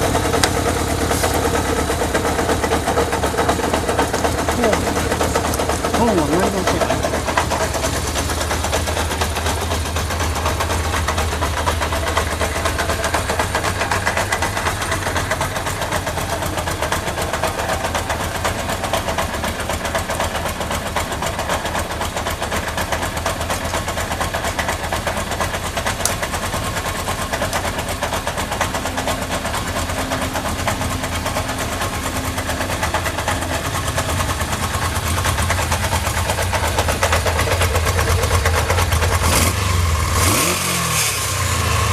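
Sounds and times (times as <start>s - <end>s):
motorcycle engine idling: 0.0s - 41.9s.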